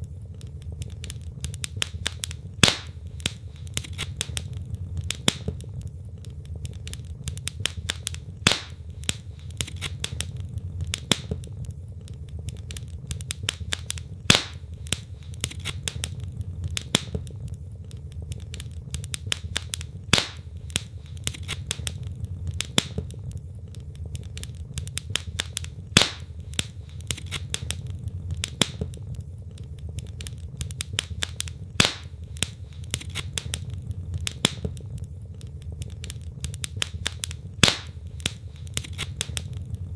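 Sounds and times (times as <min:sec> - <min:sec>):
wood fire crackling: 0:00.0 - 0:39.9
loud fire pop: 0:01.7 - 0:05.7, 0:07.6 - 0:11.6, 0:13.3 - 0:17.3, 0:19.2 - 0:23.2, 0:25.1 - 0:29.0, 0:30.8 - 0:34.8, 0:36.7 - 0:39.5.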